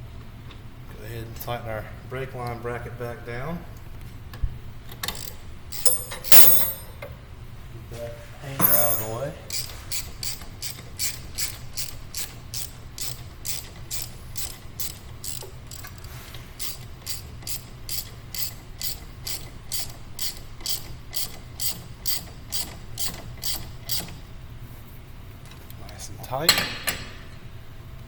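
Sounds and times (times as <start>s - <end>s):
hand ratchet clicking: 8.6s - 16.0s.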